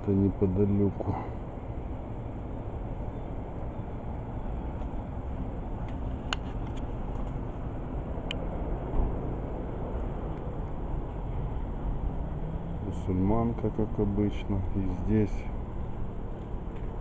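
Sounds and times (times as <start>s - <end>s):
low street rumble: 0.0s - 17.0s.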